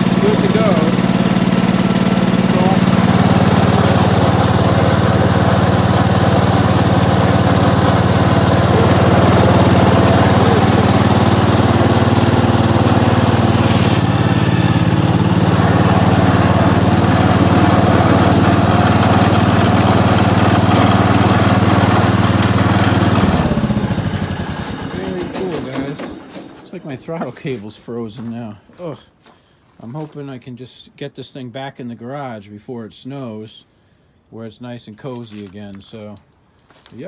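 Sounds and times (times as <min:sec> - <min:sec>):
tractor engine running: 0:00.0 - 0:28.8.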